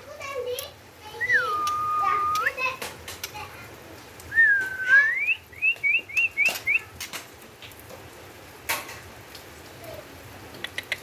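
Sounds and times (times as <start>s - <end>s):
bird whistling rising notes: 1.2s - 2.5s, 4.3s - 6.5s
sharp clicks: 10.5s - 11.0s.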